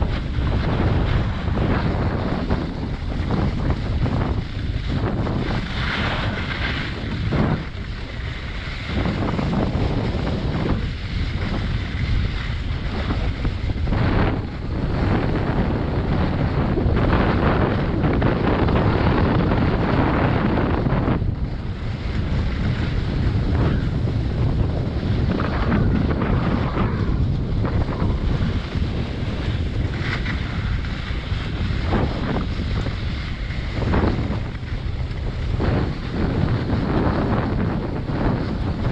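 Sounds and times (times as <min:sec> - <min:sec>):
wind noise on microphone: 0:00.0 - 0:38.9
skis hissing on snow: 0:00.1 - 0:14.2.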